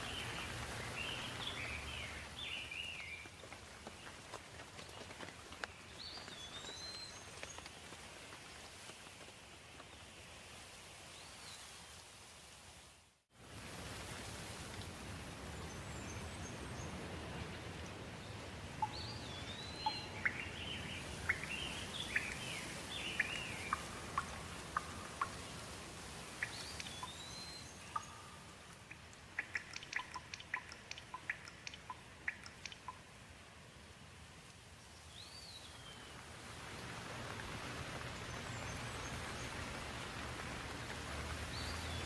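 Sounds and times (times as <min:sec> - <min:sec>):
birds singing: 0:00.0 - 0:03.3, 0:18.8 - 0:25.5
rain hiss: 0:00.0 - 0:42.0
quick sharp ticks: 0:28.7 - 0:33.0.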